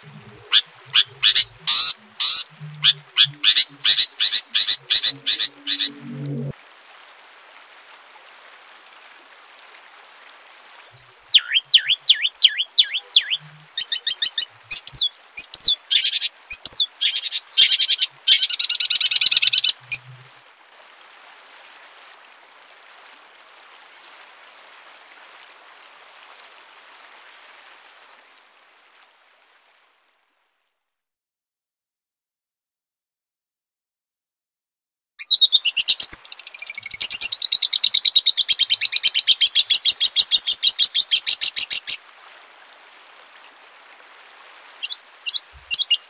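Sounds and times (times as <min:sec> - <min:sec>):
songbird singing: 0:00.0 - 0:06.5, 0:10.9 - 0:20.1, 0:35.2 - 0:42.0, 0:44.8 - 0:46.0
faint steady hiss: 0:00.0 - 0:30.4.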